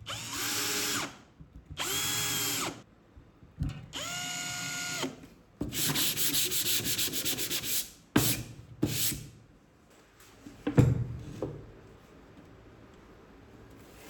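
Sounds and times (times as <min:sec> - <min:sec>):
sandpaper rubbing on plywood: 0:05.8 - 0:09.2.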